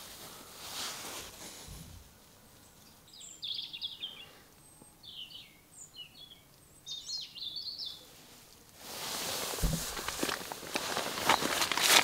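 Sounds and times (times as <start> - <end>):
songbird twittering: 2.7 - 8.0.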